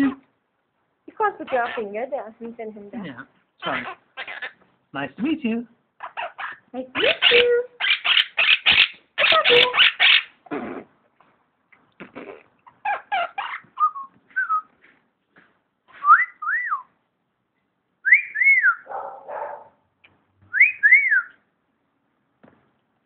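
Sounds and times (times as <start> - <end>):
parrot chattering calls: 1.4 - 1.9, 3.6 - 4.6, 6.0 - 10.6, 12.1 - 13.8
parrot garbled mumble: 3.6 - 4.6.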